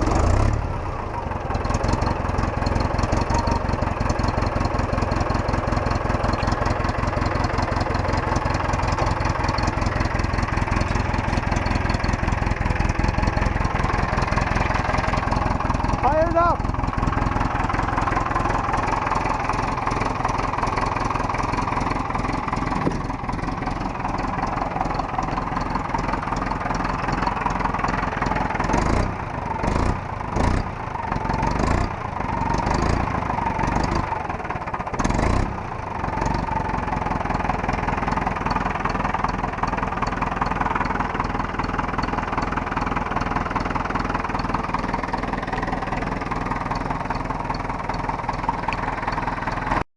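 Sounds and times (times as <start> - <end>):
diesel tractor engine idling: 0.0 - 49.9.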